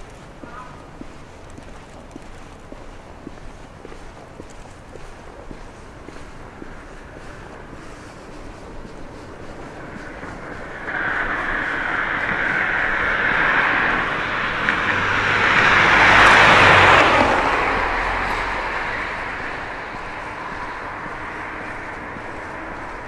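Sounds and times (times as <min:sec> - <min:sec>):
vehicle passing by: 0:06.1 - 0:23.0.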